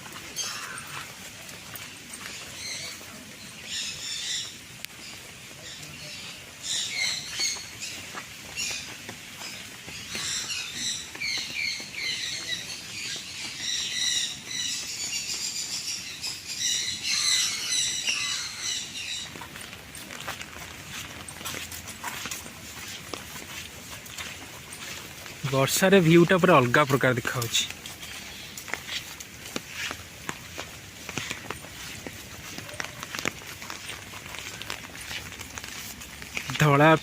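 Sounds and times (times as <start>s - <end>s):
birds chirping and calling: 0.0s - 37.0s.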